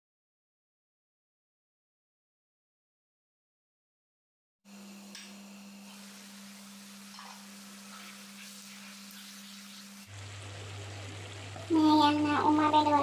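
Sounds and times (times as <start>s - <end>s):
pork sizzling in pan: 5.0s - 12.8s
spoon stirring and scraping pan: 7.0s - 10.0s.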